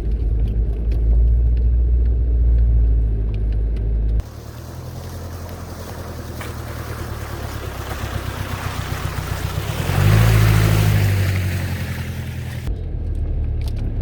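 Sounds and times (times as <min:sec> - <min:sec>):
diesel engine running under load: 0:04.2 - 0:12.7
rushing noise: 0:04.2 - 0:12.7.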